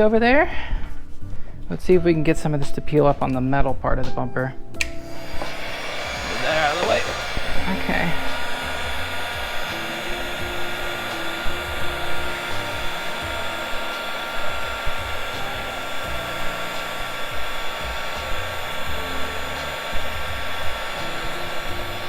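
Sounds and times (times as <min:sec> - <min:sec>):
heat gun blowing hiss: 0:04.8 - 0:22.0.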